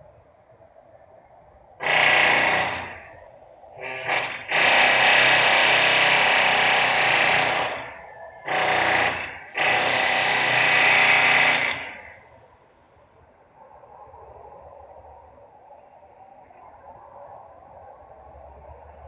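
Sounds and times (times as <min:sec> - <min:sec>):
loud power tool machinery: 0:01.8 - 0:03.2, 0:03.8 - 0:12.2.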